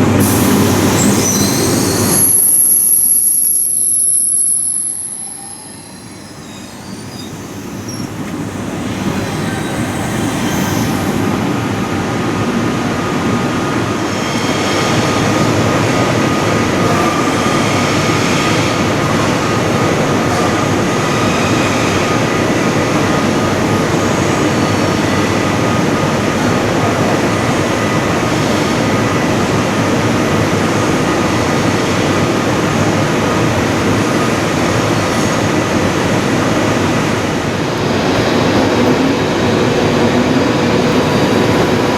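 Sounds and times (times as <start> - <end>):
train rumbling along tracks: 0.0 - 41.9
high wheel squeal: 0.2 - 11.8.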